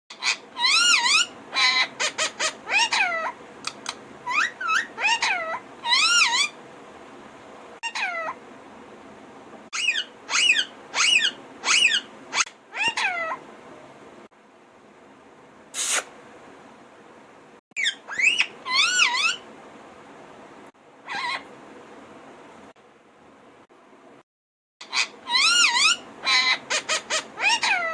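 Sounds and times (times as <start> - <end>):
parrot calling: 0.1 - 6.6, 7.8 - 8.4, 9.8 - 13.4, 15.8 - 16.1, 17.8 - 19.4, 21.0 - 21.5, 24.8 - 27.9
parrot harsh screech: 15.8 - 16.1, 21.1 - 21.4, 24.8 - 27.9.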